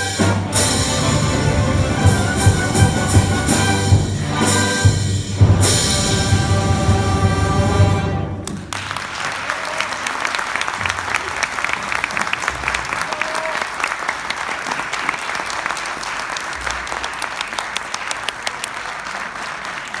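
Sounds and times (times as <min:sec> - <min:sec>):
audience applauding: 0:08.3 - 0:20.0.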